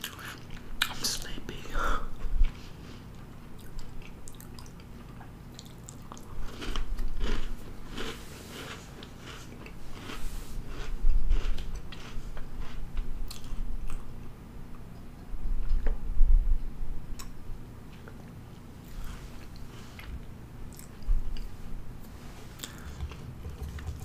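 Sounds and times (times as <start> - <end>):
cookie crunching: 3.6 - 14.1.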